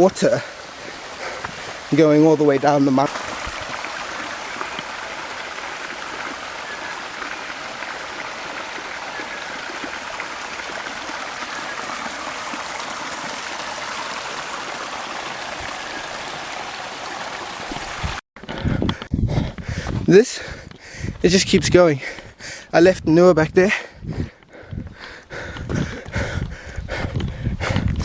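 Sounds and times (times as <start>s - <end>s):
stream rushing over rocks: 0.0s - 18.2s.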